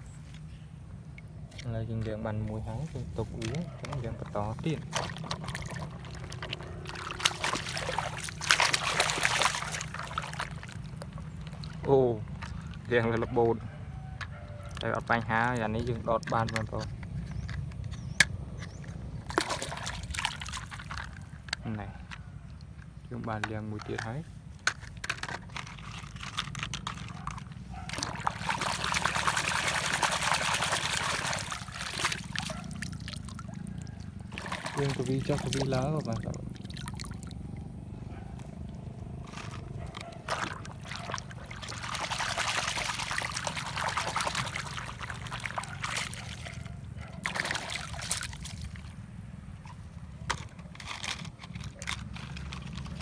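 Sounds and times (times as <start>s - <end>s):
low steady hum: 0.0s - 53.0s
water pouring and splashing: 1.1s - 53.0s
water dripping: 3.4s - 13.2s, 27.8s - 37.7s, 39.6s - 48.9s
small clicks and knocks: 21.0s - 27.4s.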